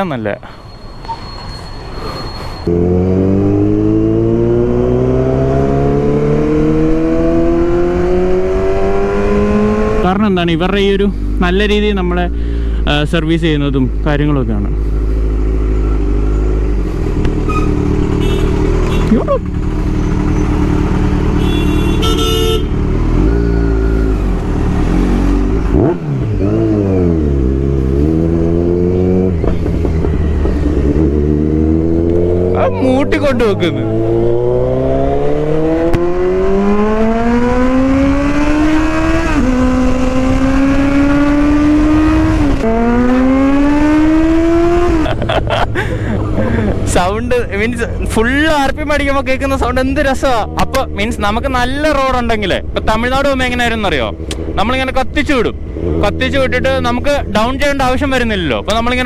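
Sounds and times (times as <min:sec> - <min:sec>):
motorcycle engine accelerating: 0:02.7 - 0:11.4, 0:14.6 - 0:59.0
motorcycle engine running: 0:14.8 - 0:34.7.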